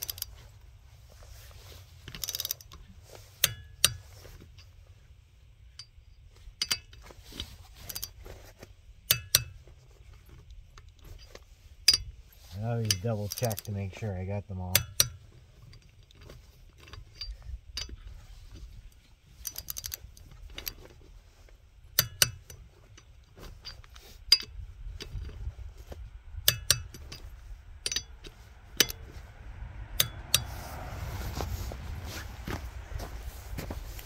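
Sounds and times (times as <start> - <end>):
torque wrench clicking: 0.0 - 0.3, 2.1 - 2.8, 14.7 - 15.2, 19.4 - 20.0, 22.0 - 22.6, 26.4 - 27.2, 27.8 - 29.0, 30.0 - 30.5
socket clinking against nuts: 26.4 - 27.2, 27.8 - 29.0.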